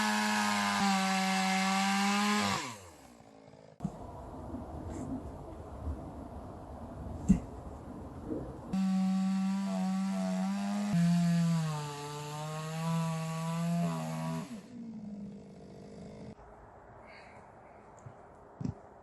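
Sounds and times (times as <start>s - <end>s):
chainsaw sawing through log: 0.0s - 3.8s, 8.8s - 14.8s.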